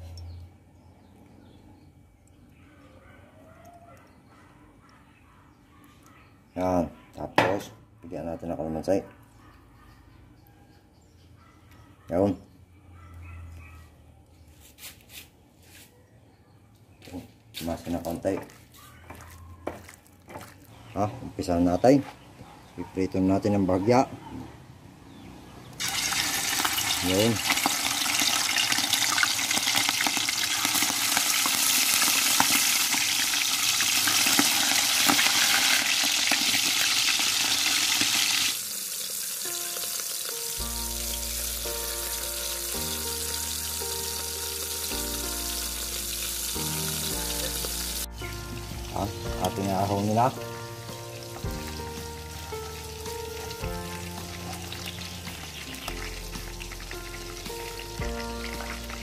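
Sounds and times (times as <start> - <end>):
chicken deep-frying in oil: 25.8 - 48.1, 51.1 - 59.0
background music: 39.4 - 59.0.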